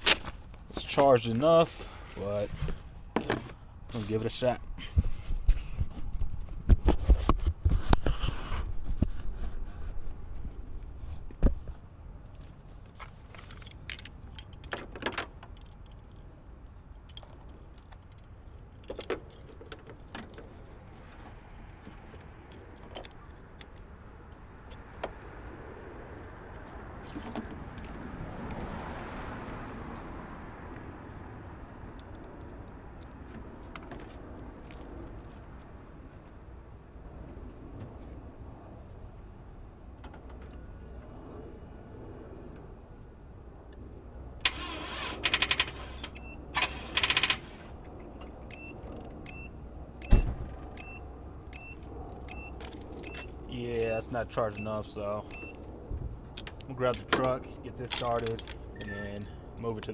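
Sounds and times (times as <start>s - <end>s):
starter motor clicking and struggling: 44.4s - 47.7s.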